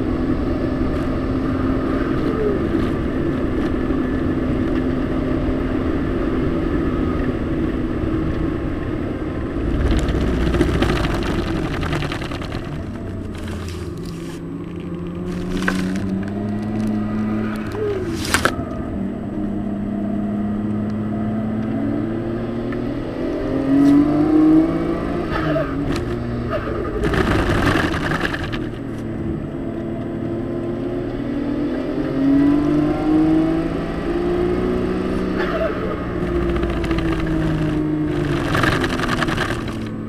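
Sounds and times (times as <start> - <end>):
car engine accelerating: 0.0 - 40.0
bursts of rushing noise: 9.3 - 13.6.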